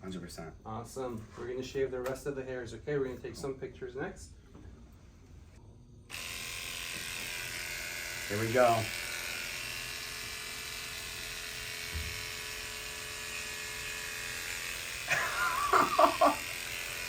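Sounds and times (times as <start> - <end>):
electric hair clippers buzzing: 6.1 - 17.0.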